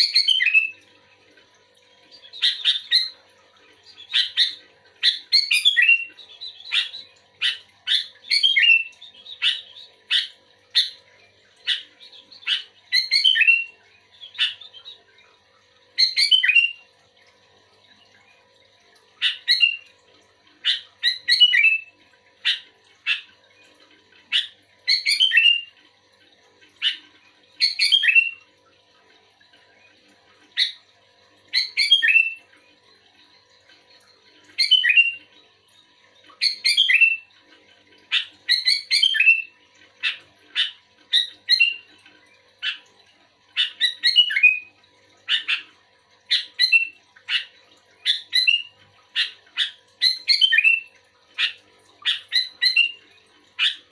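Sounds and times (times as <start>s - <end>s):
bird singing whistled phrases: 0.0s - 0.8s, 4.0s - 11.0s, 11.7s - 15.0s, 16.0s - 16.8s, 19.2s - 19.8s, 20.6s - 21.9s, 24.3s - 25.7s, 27.6s - 28.4s, 31.5s - 32.5s, 34.6s - 35.3s, 36.4s - 37.3s, 38.1s - 41.9s, 43.6s - 44.7s, 46.3s - 53.0s.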